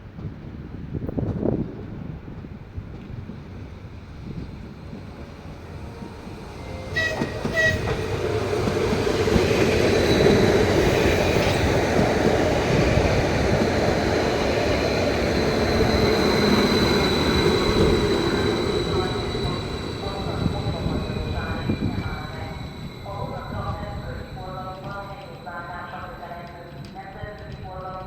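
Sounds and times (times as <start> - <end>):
train wheels rumbling on rails: 0.0 - 28.0
train horn tones: 5.4 - 9.0.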